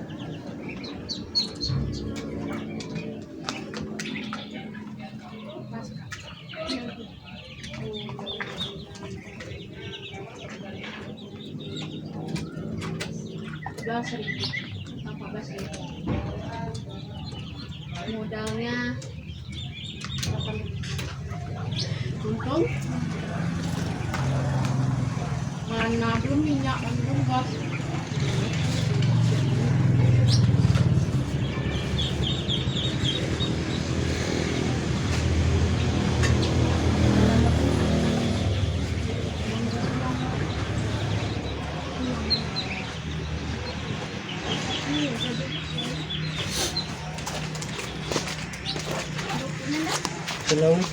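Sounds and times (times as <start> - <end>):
birds chirping and clucking: 0.0 - 50.9
engine running with pulsing hum: 19.4 - 50.7.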